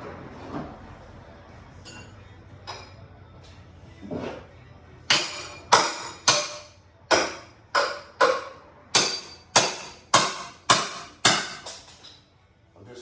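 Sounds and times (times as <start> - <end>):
hammer ringing on steel: 5.1 - 11.8.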